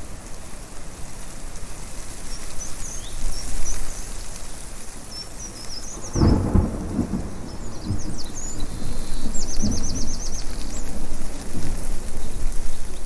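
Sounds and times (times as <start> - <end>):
steady rushing hiss: 0.0 - 13.0
small birds chirping: 2.1 - 13.0
thunder rumbling: 5.6 - 13.0.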